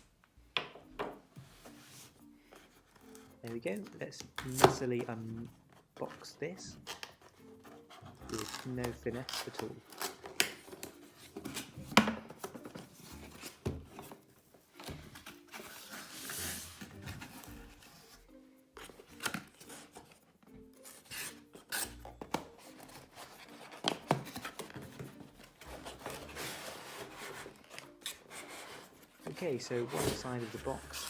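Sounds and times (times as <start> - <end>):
quiet background music: 0.0 - 31.0
cardboard scraping and rubbing: 15.1 - 18.2, 22.6 - 31.0.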